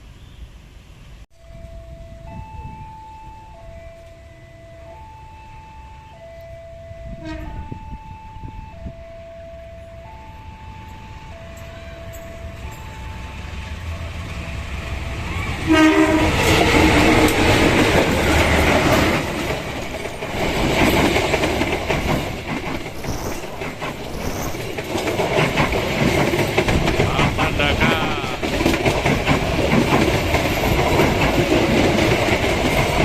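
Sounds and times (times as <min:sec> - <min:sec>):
train rumble: 0:00.0 - 0:33.0
train horn: 0:01.6 - 0:14.0, 0:15.0 - 0:19.2
wheels clattering over rail joints: 0:13.9 - 0:33.0.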